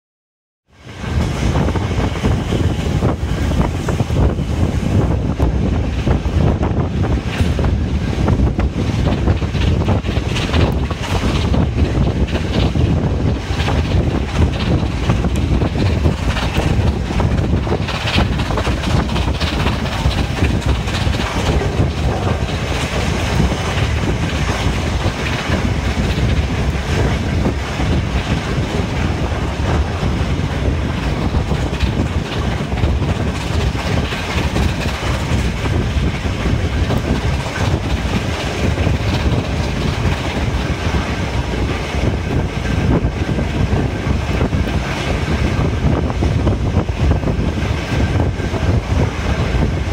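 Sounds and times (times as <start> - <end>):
train wheels rumbling on rails: 0.7 - 49.9
clickety-clack over rail joints: 0.8 - 49.9.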